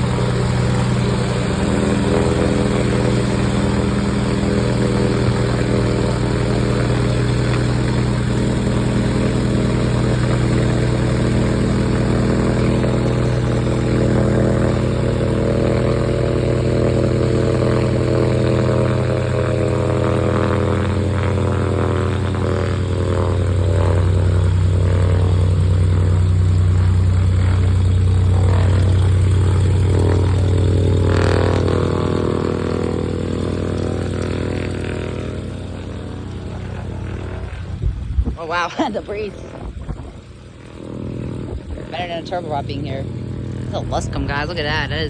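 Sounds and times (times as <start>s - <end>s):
propeller airplane drone: 0.0s - 45.0s.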